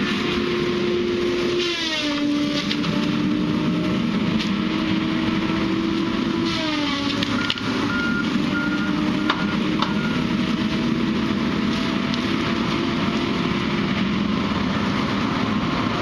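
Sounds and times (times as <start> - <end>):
heavy machine engine running: 0.0 - 16.0
reversing alarm beeps: 7.3 - 10.3.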